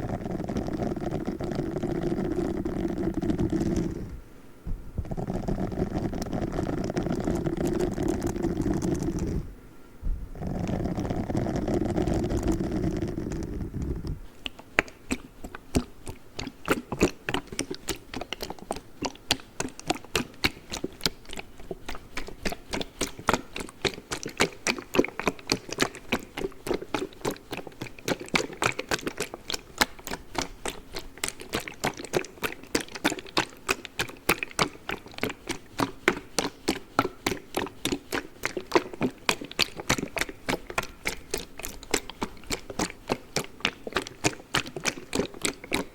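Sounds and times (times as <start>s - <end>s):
short muffled low sound: 4.1s - 5.2s, 10.0s - 10.4s.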